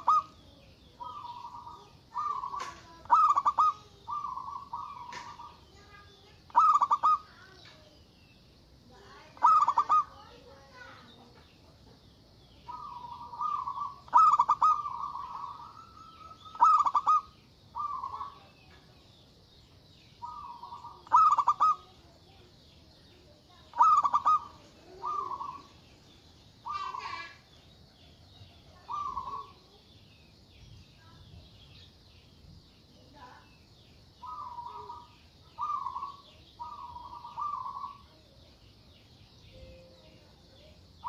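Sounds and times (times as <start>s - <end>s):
dove cooing: 0.0s - 7.6s, 9.2s - 10.4s, 12.6s - 18.6s, 20.2s - 22.2s, 23.6s - 25.8s, 26.6s - 27.4s, 28.7s - 29.6s, 34.2s - 38.2s
faint high chirring: 39.3s - 41.0s.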